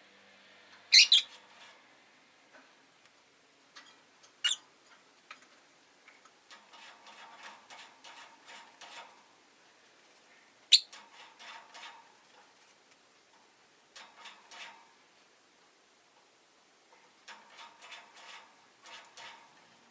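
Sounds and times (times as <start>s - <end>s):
bird chirps: 0.9s - 1.3s, 10.7s - 10.9s.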